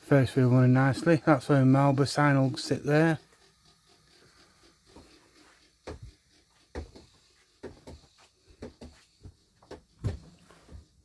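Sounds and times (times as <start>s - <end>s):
light hard knocks and clicks: 5.8s - 10.4s.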